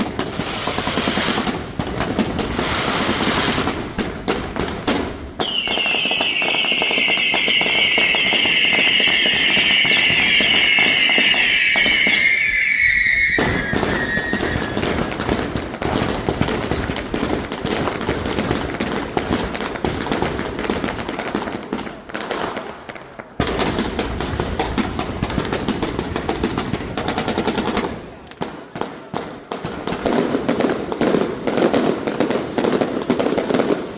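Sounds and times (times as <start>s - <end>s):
fireworks bangs and crackles: 0.0s - 33.9s
shrill firework whistle: 5.4s - 15.3s.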